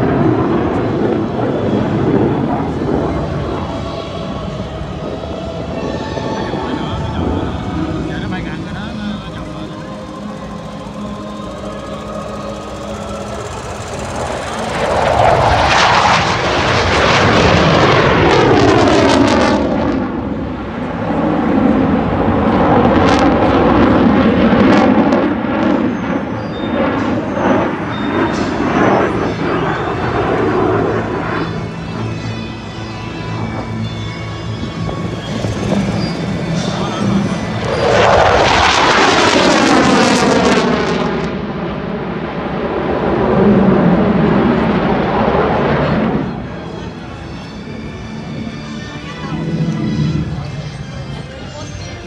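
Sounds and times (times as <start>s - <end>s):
aircraft flying low past: 0.0s - 52.0s.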